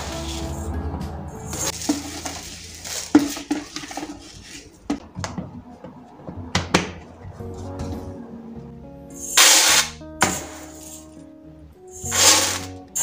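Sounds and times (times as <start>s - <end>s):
soft background music: 0.0s - 13.0s
dishes knocking and clinking: 3.0s - 7.1s.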